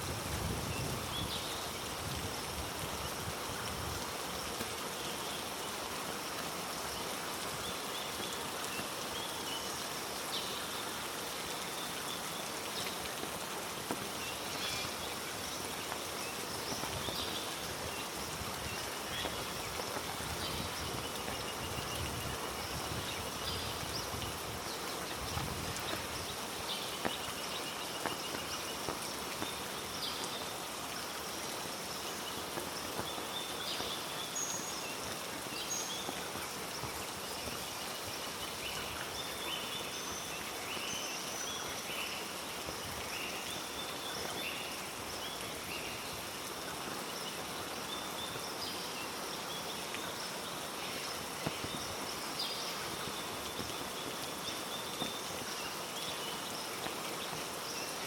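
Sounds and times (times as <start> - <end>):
heavy rain falling: 0.0 - 39.7.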